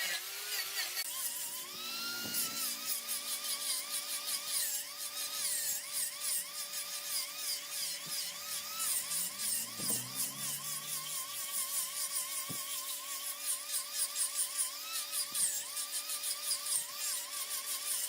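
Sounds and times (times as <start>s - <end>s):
ticking and hiss from cutting: 0.0s - 18.0s
wood lathe whining: 0.0s - 18.0s
steady hum: 8.2s - 12.0s.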